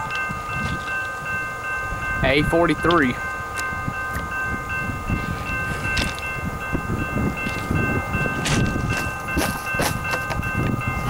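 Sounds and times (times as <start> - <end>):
distant freight train rumble: 0.0 - 11.0
steady high ringing tones: 0.0 - 11.0.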